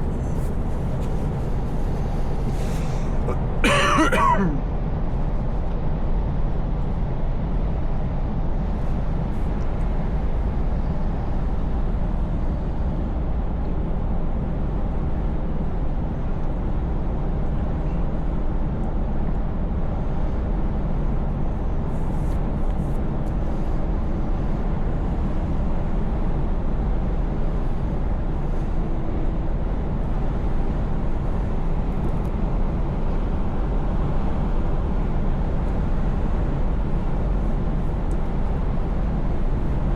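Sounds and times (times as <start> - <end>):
road noise: 0.0 - 4.7.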